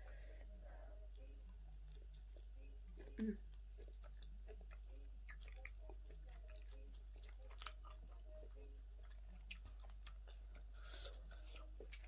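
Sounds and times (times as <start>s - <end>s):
steady low hum: 0.0s - 12.0s
chewing and crunching on bone: 1.2s - 12.0s.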